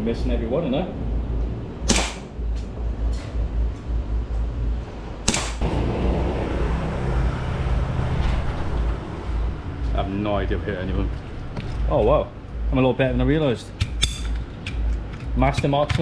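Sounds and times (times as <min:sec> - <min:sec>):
low rumble: 0:00.0 - 0:13.6
faint gunshots: 0:01.9 - 0:02.3, 0:05.3 - 0:05.6
gunshots cracking: 0:01.9 - 0:02.3, 0:05.3 - 0:05.7.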